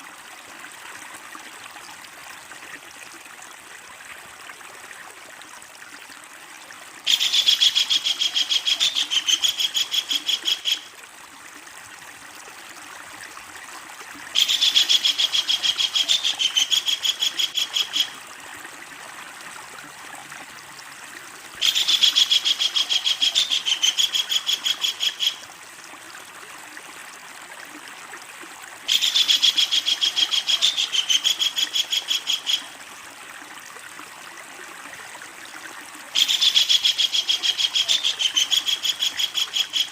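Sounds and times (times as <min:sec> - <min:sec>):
kingfisher chattering call: 0:07.1 - 0:10.8, 0:14.4 - 0:18.1, 0:21.6 - 0:25.4, 0:28.9 - 0:32.7, 0:36.2 - 0:39.9.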